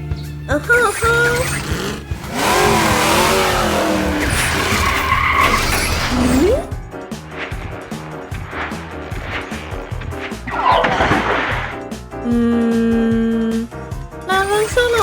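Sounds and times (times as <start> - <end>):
background music: 0.0 - 15.0
cartoon truck engine revving: 0.6 - 6.8, 14.3 - 15.0
tyres skidding: 0.6 - 11.9, 14.3 - 15.0
rising whine: 1.3 - 6.8.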